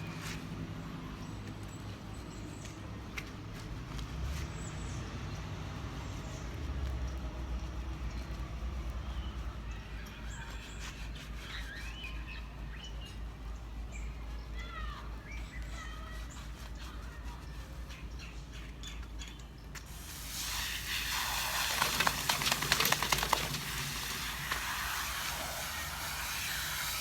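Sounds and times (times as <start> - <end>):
small birds chirping: 0.0 - 27.0
spraying water hiss: 19.9 - 27.0
rapid crackling spatter: 20.3 - 26.1.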